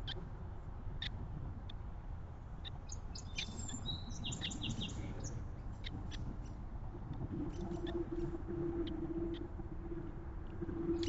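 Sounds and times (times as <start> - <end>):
small birds chirping: 2.9 - 5.4.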